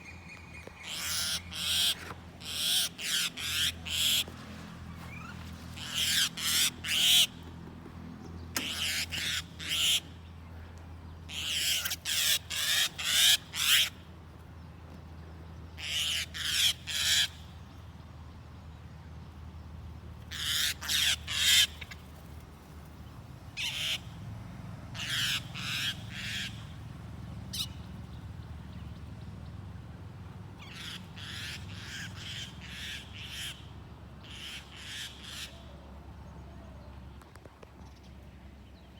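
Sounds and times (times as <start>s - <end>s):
bird giving harsh calls: 0.8s - 4.3s, 5.0s - 7.3s, 8.6s - 10.0s, 11.3s - 13.9s, 20.3s - 22.0s, 25.0s - 26.7s, 30.6s - 35.6s.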